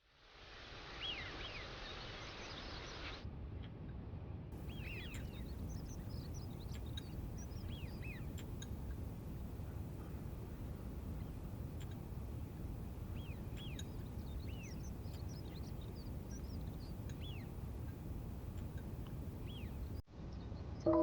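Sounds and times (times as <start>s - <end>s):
small birds chirping: 4.6s - 20.0s
steady low rumble: 4.6s - 20.0s.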